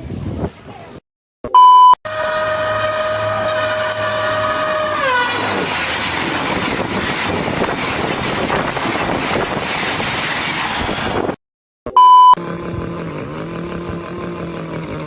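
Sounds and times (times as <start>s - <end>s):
train horn dropping in pitch: 2.1s - 5.7s
train rushing by: 2.1s - 11.4s.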